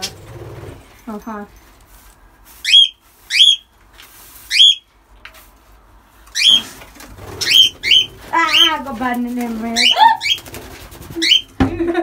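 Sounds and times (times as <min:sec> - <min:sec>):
parrot shrill calls: 0:02.6 - 0:03.7, 0:04.5 - 0:04.9, 0:06.3 - 0:06.7, 0:07.4 - 0:08.8, 0:09.8 - 0:10.4, 0:11.2 - 0:11.5.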